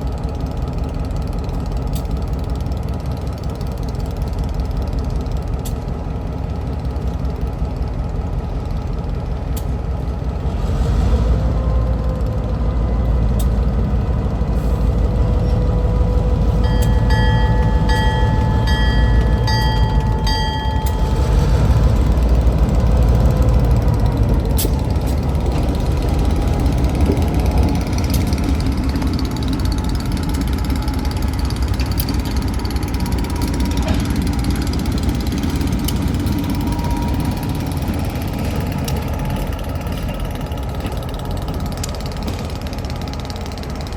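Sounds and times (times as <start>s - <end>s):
train rumbling by: 0.0s - 43.9s
bell-like ringing signal: 16.4s - 22.0s, 35.9s - 38.5s.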